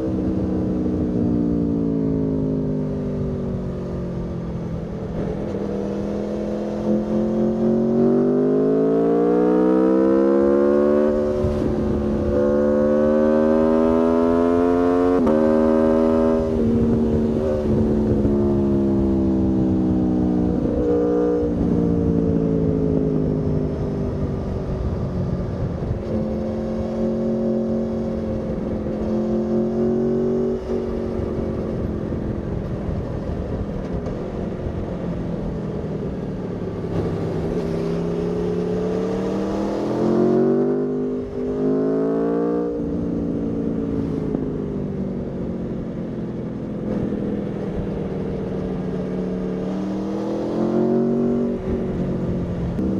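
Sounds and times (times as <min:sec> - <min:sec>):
wind and road noise: 0:00.0 - 0:52.9
motorcycle engine revving: 0:05.1 - 0:34.9, 0:36.1 - 0:52.9.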